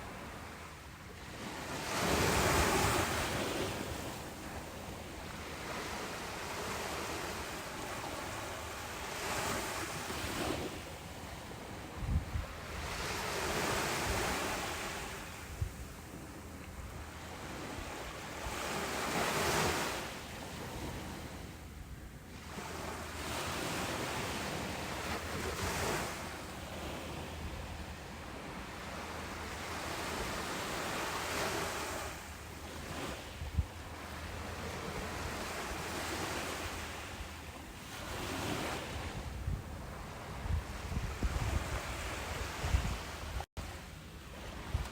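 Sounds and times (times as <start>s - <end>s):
ocean waves breaking: 0.0s - 44.9s.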